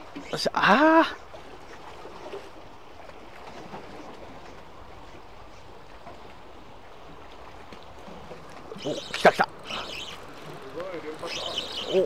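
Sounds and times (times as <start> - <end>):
sea washing: 0.0 - 12.0.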